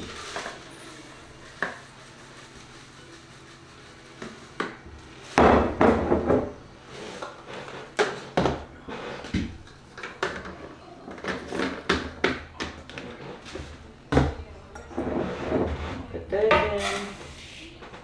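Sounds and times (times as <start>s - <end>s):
containers and utensils knocking: 4.2s - 18.0s.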